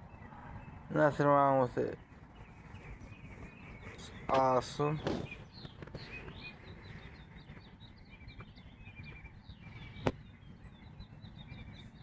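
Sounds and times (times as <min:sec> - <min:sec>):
faint birdsong chirps: 0:00.0 - 0:12.0.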